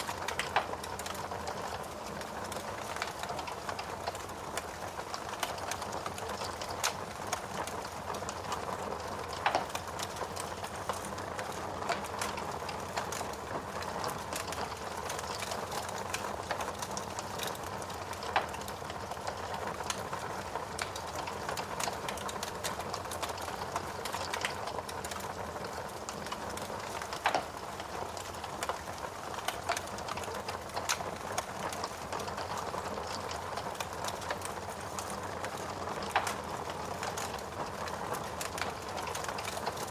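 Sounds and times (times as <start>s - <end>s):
steady rain: 0.0s - 39.9s
wood fire crackling: 0.0s - 39.9s
sharp pops from fire: 27.0s - 27.5s, 35.0s - 36.4s.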